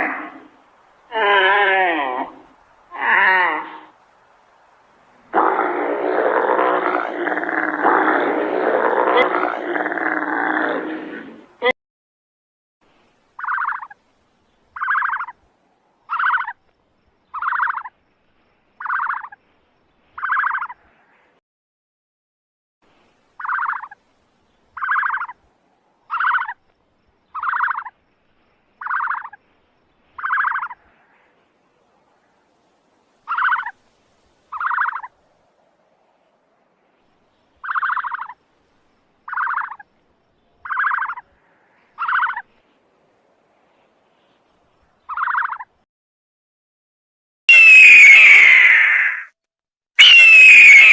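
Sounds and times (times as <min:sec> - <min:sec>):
animal's short buzzy call: 0:47.5 - 0:49.3, 0:50.0 - 0:50.9.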